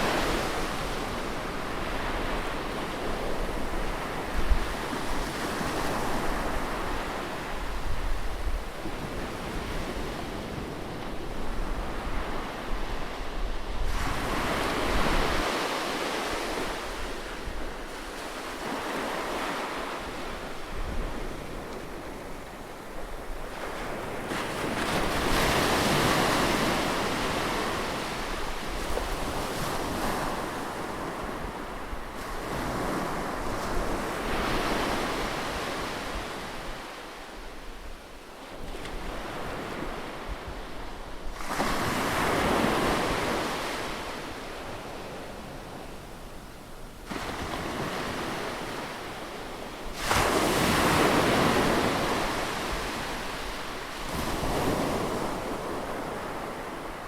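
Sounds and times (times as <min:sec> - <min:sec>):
ocean waves breaking: 0:47.1 - 0:57.0.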